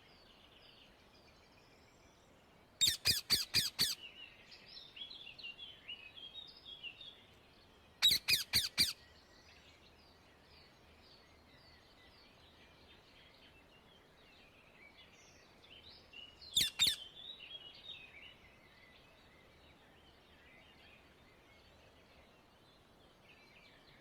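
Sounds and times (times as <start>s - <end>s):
faint bird chirping: 0.0s - 24.0s
parakeet screeching: 2.8s - 4.0s, 8.0s - 9.0s.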